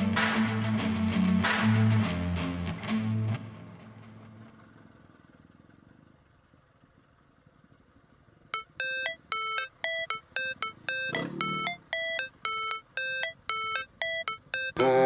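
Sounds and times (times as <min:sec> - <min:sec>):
guitar music: 0:00.0 - 0:03.9
short electronic beeps: 0:08.6 - 0:15.0.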